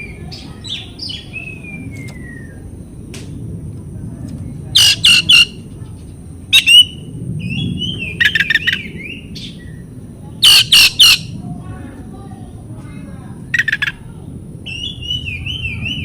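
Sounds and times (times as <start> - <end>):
steady low hum: 0.0 - 16.0
bird giving harsh calls: 4.7 - 5.6, 6.5 - 7.0, 10.4 - 11.4, 13.5 - 14.0.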